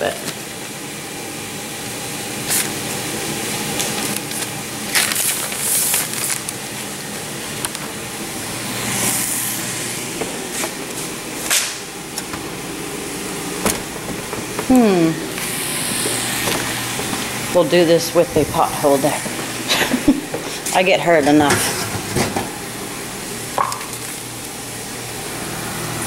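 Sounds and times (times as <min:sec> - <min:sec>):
kitchen handling rustling: 0:13.4 - 0:14.7, 0:15.3 - 0:22.6.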